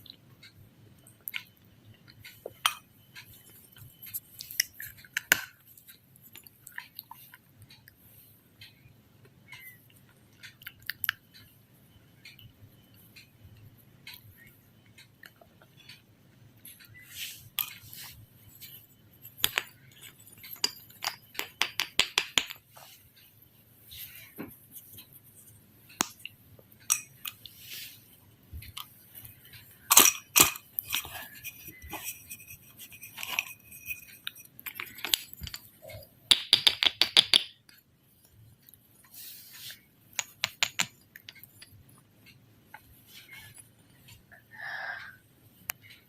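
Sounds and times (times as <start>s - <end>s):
clicks and taps on hard objects: 19.4s - 22.7s, 36.3s - 37.8s, 40.2s - 41.7s.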